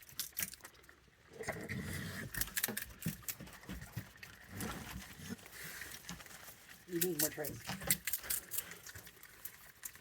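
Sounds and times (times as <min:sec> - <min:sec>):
animals chewing and scuffling: 0:00.0 - 0:10.0.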